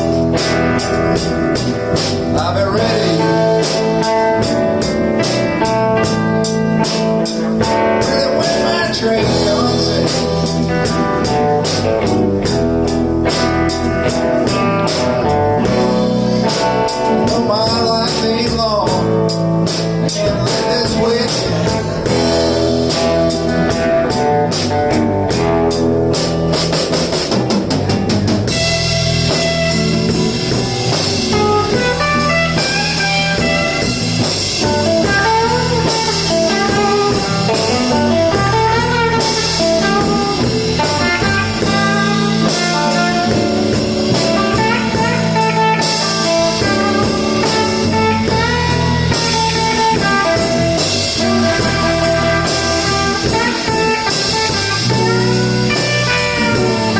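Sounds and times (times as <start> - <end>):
drum kit and bass: 0.0 - 56.9
electric guitar solo: 28.5 - 56.9.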